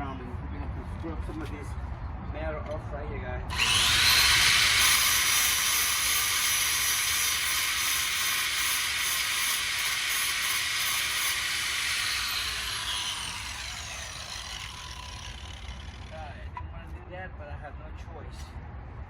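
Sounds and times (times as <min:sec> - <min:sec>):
rotary tool grinding metal: 0:03.5 - 0:16.5.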